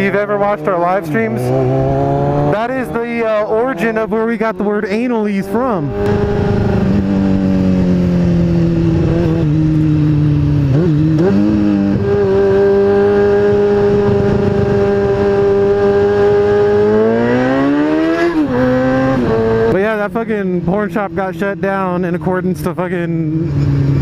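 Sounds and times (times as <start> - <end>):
motorcycle engine running: 0.0 - 24.0
wind noise: 5.7 - 19.8.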